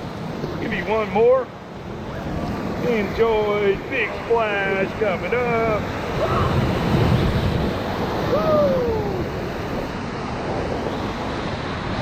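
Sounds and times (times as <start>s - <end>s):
whitewater rapids rushing: 2.0s - 12.0s
person whooping: 8.3s - 9.3s.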